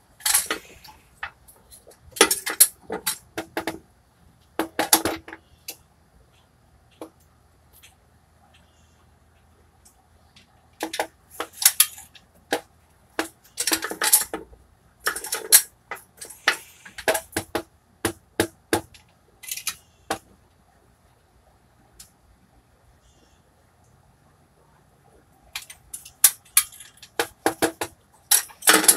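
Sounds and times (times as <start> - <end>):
metallic clinks and clanks: 0.2 - 1.0, 19.4 - 19.9, 25.6 - 28.9.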